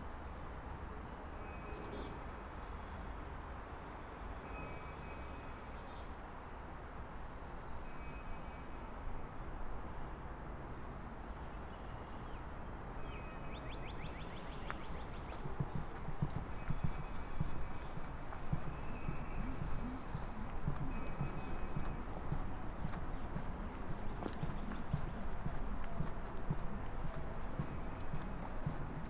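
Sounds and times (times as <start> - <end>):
songbirds chirping and trilling: 10.8 - 29.0
steady low rumble: 15.0 - 29.0.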